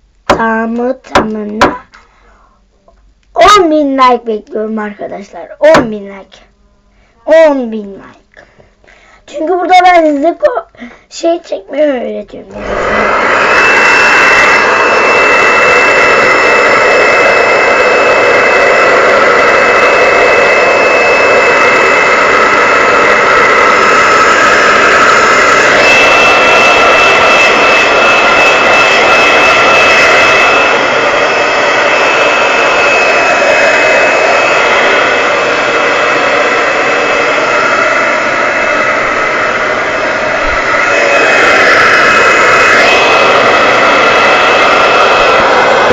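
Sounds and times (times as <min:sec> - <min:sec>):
hair dryer running: 0:12.4 - 0:45.9.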